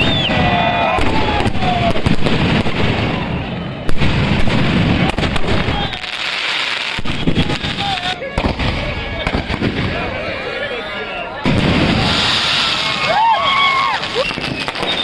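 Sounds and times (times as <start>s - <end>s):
loud firework bang: 0.0s - 5.9s, 11.4s - 13.2s
fireworks crackling and popping: 0.0s - 10.5s, 11.4s - 15.0s.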